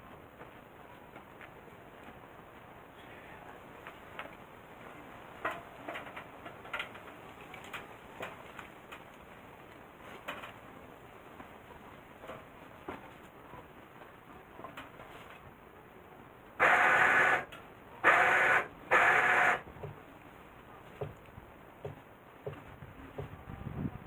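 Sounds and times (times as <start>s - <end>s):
electric winch running: 16.6s - 19.7s.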